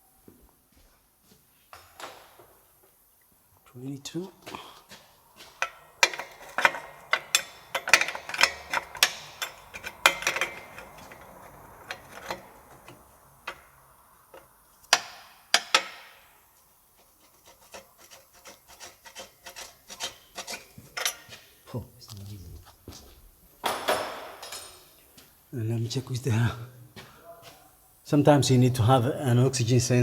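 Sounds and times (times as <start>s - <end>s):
hand tools clicking on metal: 4.4s - 21.6s
loud metal scrape: 5.0s - 16.3s, 16.9s - 21.5s.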